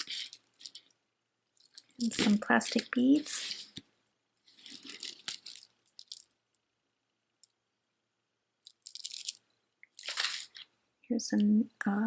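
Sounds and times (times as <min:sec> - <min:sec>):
plastic beads clicking and rattling: 0:00.0 - 0:03.8, 0:04.4 - 0:06.6, 0:08.6 - 0:10.7.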